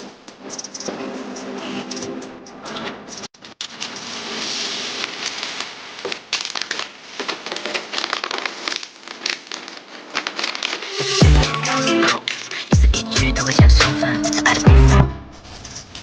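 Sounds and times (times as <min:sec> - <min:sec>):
plastic packaging crinkling: 0:03.4 - 0:12.8
music with heavy bass: 0:11.0 - 0:15.4.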